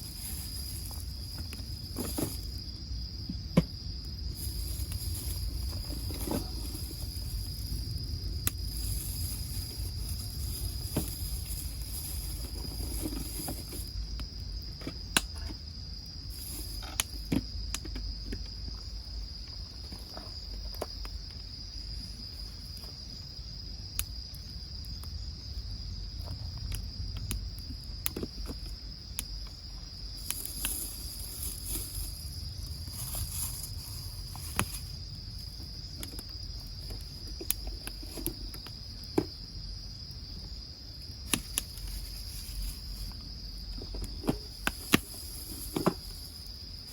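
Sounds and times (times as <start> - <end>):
wood fire crackling: 0.0 - 12.9, 26.3 - 39.1
crickets chirring: 0.0 - 46.9.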